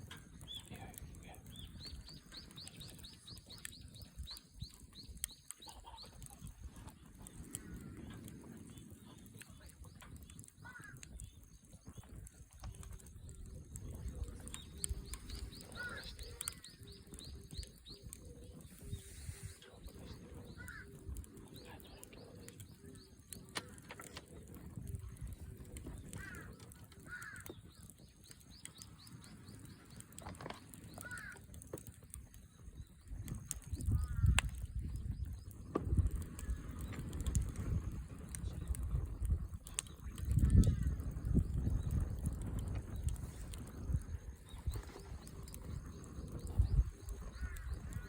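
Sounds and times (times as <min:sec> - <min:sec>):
small clicks: 0:22.4 - 0:48.0.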